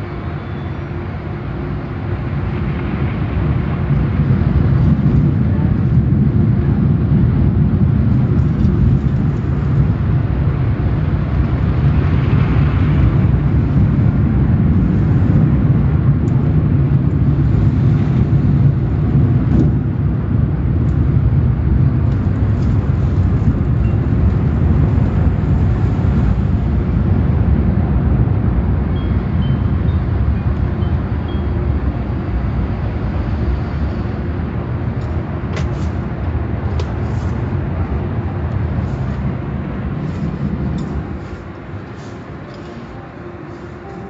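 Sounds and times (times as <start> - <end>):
car wash rumble: 0.0 - 44.0.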